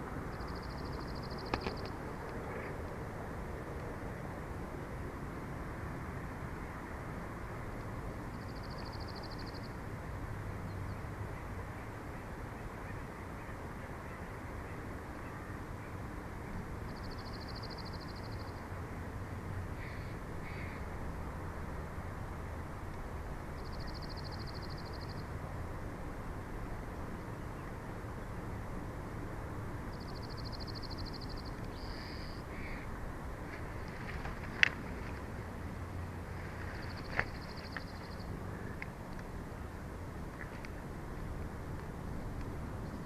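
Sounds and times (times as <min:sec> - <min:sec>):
faint bird calls: 0:19.8 - 0:20.8, 0:30.1 - 0:32.9.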